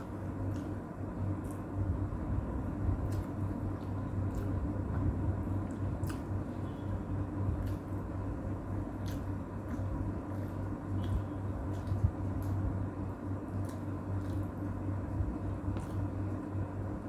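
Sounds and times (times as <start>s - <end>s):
steady low hum: 0.0s - 17.0s
person chewing: 3.0s - 6.7s, 7.5s - 12.8s, 13.5s - 14.8s.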